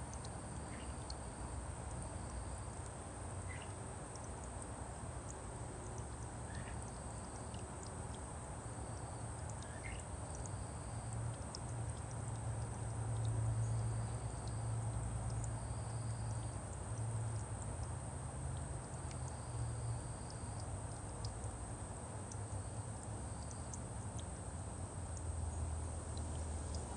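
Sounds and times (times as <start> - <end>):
bird chirps: 3.5 - 3.7, 9.6 - 10.0.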